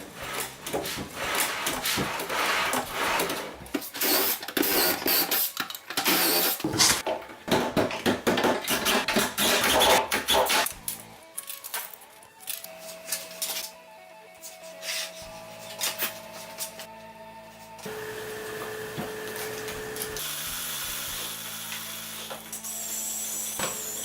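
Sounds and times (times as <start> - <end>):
power drill driving screws: 6.0 - 6.9.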